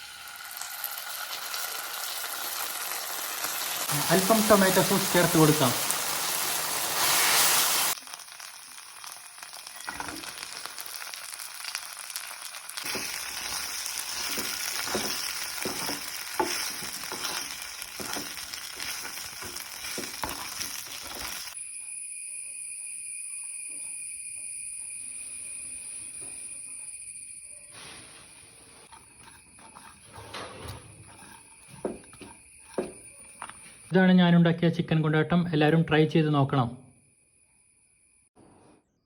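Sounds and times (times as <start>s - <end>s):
sauce sizzling in oil: 0.0s - 21.6s
spoon scraping pan: 12.8s - 21.6s, 28.6s - 33.9s
high-pitched whine: 19.3s - 34.0s.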